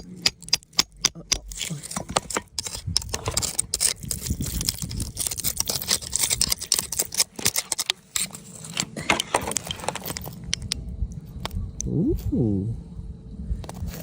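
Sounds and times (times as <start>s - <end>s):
scraping against rock: 0.0s - 10.8s.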